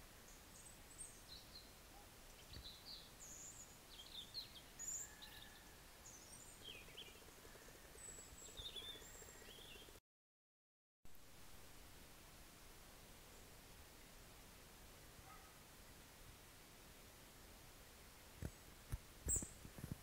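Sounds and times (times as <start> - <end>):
faint birds chirping: 0.0 - 10.0
low steady background hiss: 0.0 - 10.0, 11.1 - 20.0.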